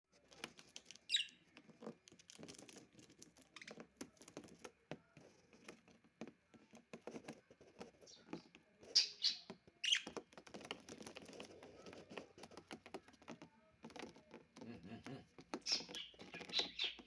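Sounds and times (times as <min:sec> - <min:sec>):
light taps and scratching: 0:00.1 - 0:17.0
bird chirp: 0:00.8 - 0:01.6, 0:08.0 - 0:10.3, 0:14.9 - 0:17.0.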